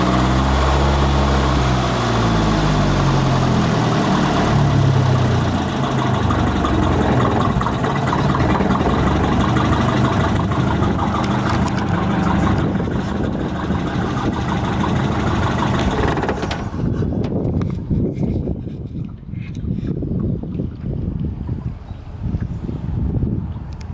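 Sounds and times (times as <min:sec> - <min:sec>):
boat engine idling: 0:00.0 - 0:17.9.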